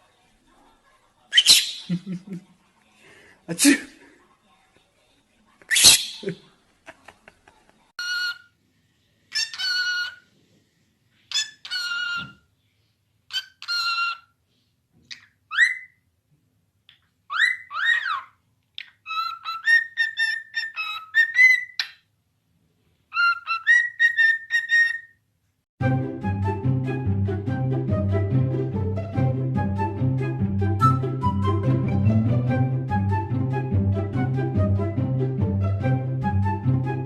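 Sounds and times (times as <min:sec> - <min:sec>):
parrot calling: 0:01.4 - 0:02.0, 0:05.7 - 0:06.4, 0:08.0 - 0:08.5, 0:09.3 - 0:10.2, 0:11.3 - 0:12.4, 0:13.3 - 0:14.3, 0:15.1 - 0:16.0, 0:17.3 - 0:22.0, 0:23.1 - 0:25.2
parrot whistling: 0:01.4 - 0:02.0, 0:05.7 - 0:06.3.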